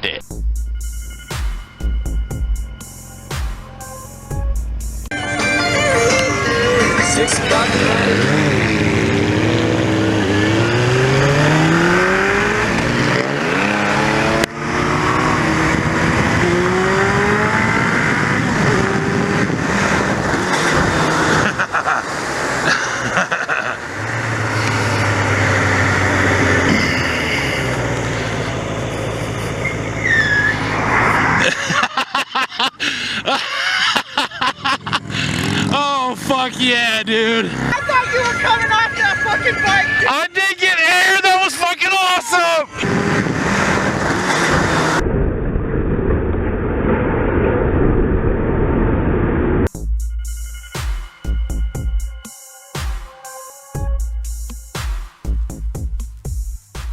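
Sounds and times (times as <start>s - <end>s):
vehicle engine running: 0.3s - 32.0s, 34.3s - 47.0s
heavy wind rush: 6.0s - 36.0s, 42.2s - 49.7s
wind rush on microphone: 15.3s - 21.7s, 42.8s - 49.7s
low rumble: 42.7s - 52.2s.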